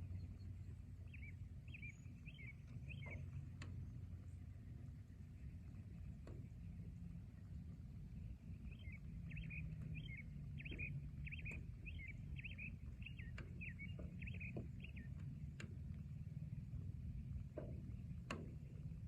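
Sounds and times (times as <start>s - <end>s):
bird chirping: 0.0s - 3.5s, 8.4s - 15.7s
low background rumble: 0.0s - 19.0s
soft ticks: 2.3s - 4.3s, 6.0s - 6.9s, 8.7s - 16.5s, 17.2s - 19.0s.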